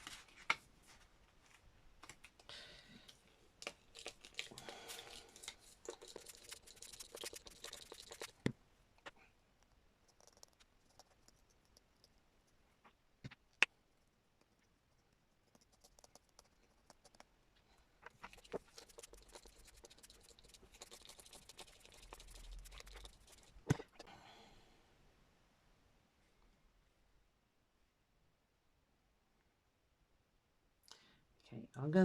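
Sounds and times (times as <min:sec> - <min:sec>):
fine patter and crackle: 0:03.9 - 0:08.4.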